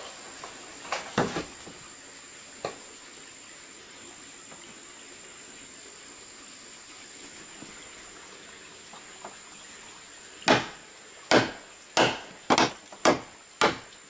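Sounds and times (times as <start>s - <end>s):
steady hiss: 0.0s - 14.0s
knocks: 10.5s - 13.9s.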